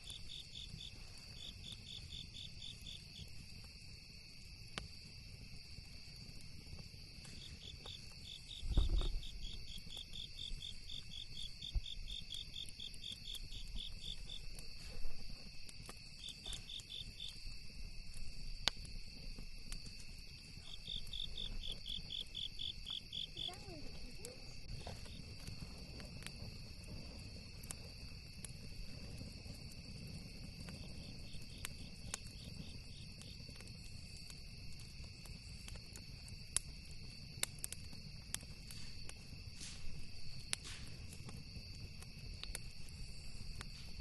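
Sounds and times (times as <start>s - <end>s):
campfire popping: 0.0s - 44.0s
high insect trill: 0.0s - 44.0s
insects chirping: 0.0s - 44.0s
low thump: 8.6s - 9.2s.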